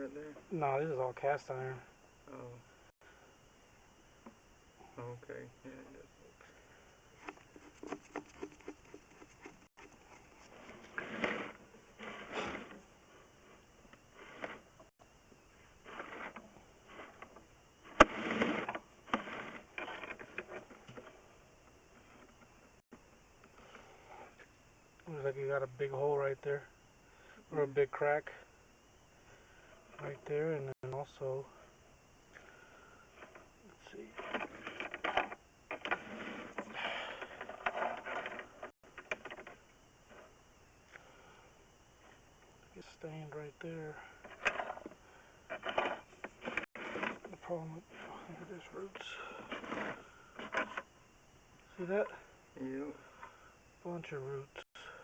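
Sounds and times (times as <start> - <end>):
scraping and rustling handling noises: 7.1 - 14.9, 33.2 - 40.4, 43.8 - 50.9.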